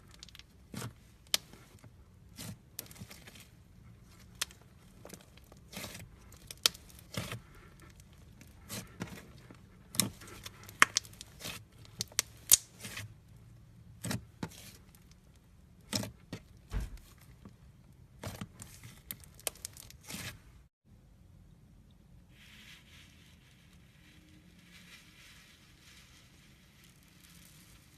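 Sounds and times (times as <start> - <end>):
slime crackling and popping: 4.1 - 9.3, 9.9 - 13.1, 18.3 - 20.4.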